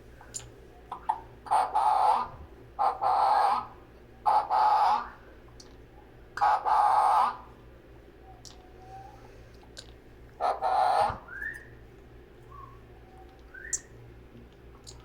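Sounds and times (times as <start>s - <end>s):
parrot harsh calls: 0.9s - 5.2s, 6.4s - 7.5s, 10.4s - 11.4s.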